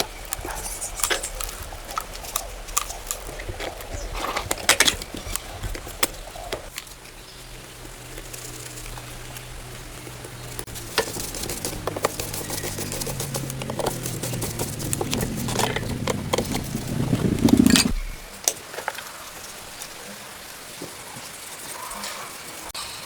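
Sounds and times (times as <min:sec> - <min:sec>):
small motor humming: 0:08.4 - 0:18.4.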